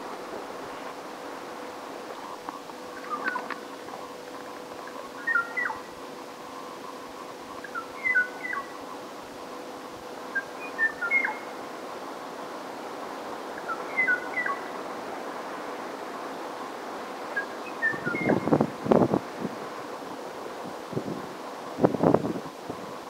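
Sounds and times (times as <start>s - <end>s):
low rush of noise: 0.0s - 23.0s
steady hum and hiss: 0.0s - 23.0s
bird whistled song: 3.0s - 3.5s, 5.2s - 5.9s, 7.5s - 9.0s, 10.3s - 11.5s, 13.6s - 14.7s, 17.4s - 18.5s.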